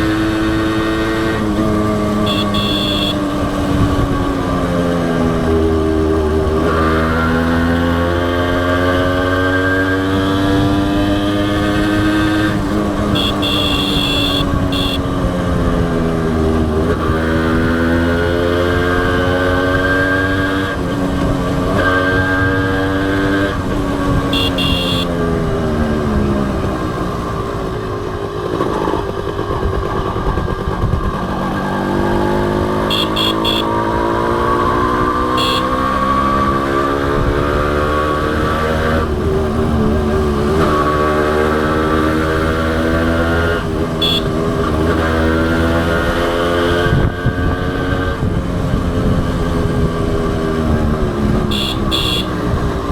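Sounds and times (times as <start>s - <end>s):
motorcycle engine running: 0.0s - 36.4s, 39.0s - 52.9s
wind and road noise: 0.0s - 52.9s
horn beeping: 1.5s - 3.6s, 11.8s - 15.5s, 24.0s - 25.5s, 32.6s - 36.4s, 43.9s - 44.6s, 51.4s - 52.7s
short high beeps: 13.1s - 15.1s, 32.8s - 33.9s.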